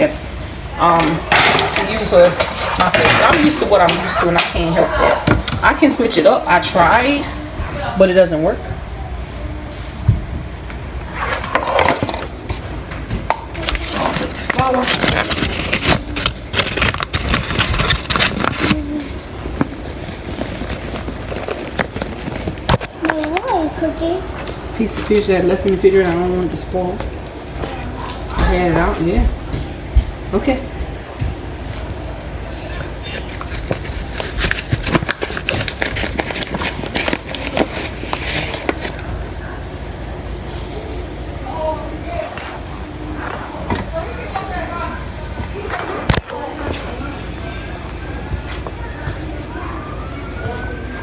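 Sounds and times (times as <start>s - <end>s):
low background hum: 0.0s - 51.0s
kitchen clicks knocks and scrapes: 1.0s - 5.7s
rustling: 13.6s - 28.0s, 33.0s - 41.4s.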